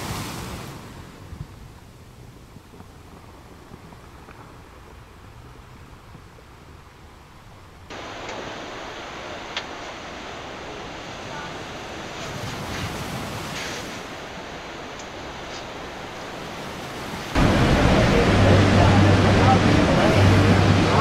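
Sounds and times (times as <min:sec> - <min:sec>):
ocean waves breaking: 0:00.0 - 0:01.7, 0:07.9 - 0:21.0.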